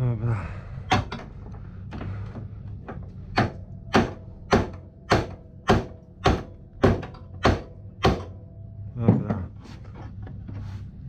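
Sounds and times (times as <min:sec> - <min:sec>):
hammer striking metal: 0:03.4 - 0:08.4.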